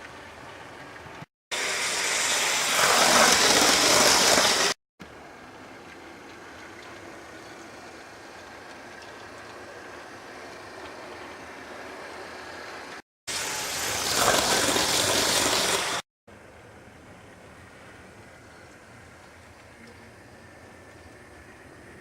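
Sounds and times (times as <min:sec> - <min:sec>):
model train running on track: 0:01.6 - 0:04.7.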